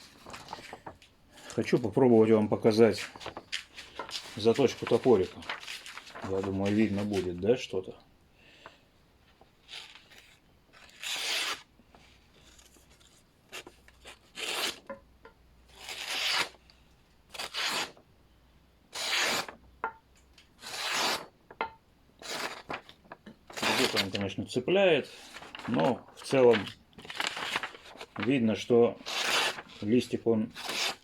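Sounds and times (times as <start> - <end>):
hatchet slicing paper: 9.7 - 11.7, 13.5 - 14.8, 15.7 - 16.6, 17.3 - 18.0, 19.0 - 19.6, 20.6 - 21.3, 22.2 - 22.9, 23.5 - 24.2, 26.6 - 28.4, 29.0 - 31.0.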